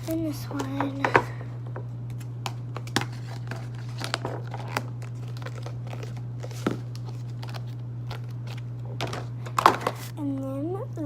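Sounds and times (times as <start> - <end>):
plastic containers clicking: 9.0 - 10.0.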